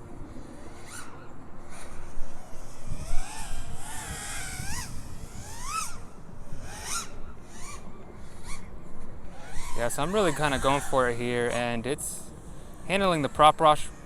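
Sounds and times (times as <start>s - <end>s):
low wind rumble: 0.0s - 14.0s
quadcopter motors whining: 0.0s - 14.0s.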